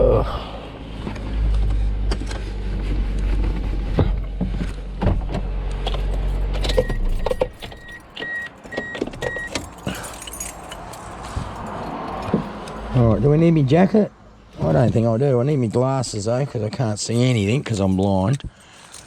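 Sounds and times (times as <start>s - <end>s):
keys jangling: 6.0s - 12.9s, 18.5s - 19.0s
car warning beeps: 6.6s - 9.7s.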